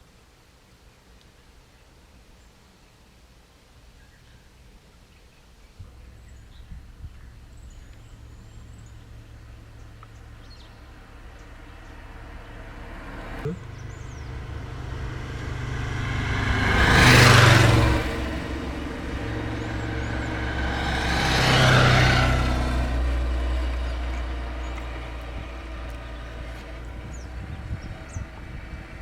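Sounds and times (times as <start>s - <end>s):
vehicles driving past: 5.8s - 29.0s.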